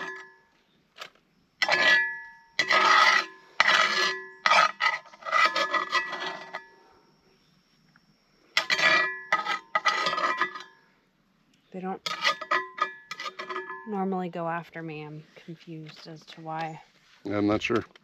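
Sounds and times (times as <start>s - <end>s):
rasping scrapes on metal cookware: 1.6s - 6.6s, 8.6s - 10.7s, 12.0s - 13.8s.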